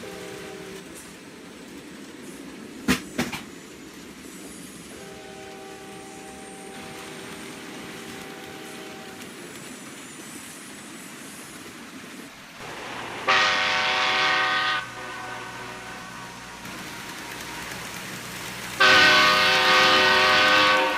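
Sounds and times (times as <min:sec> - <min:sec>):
train horn chord blast: 0:00.0 - 0:00.8, 0:04.9 - 0:09.2, 0:12.6 - 0:17.7, 0:18.8 - 0:20.9
steady horn tone: 0:12.6 - 0:17.0, 0:18.8 - 0:20.9.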